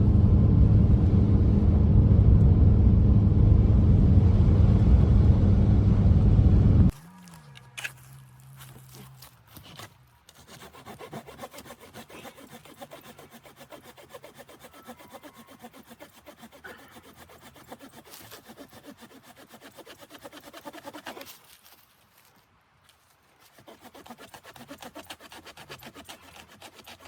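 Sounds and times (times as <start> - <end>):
hand saw cutting wood: 7.0 - 21.5, 23.4 - 27.0.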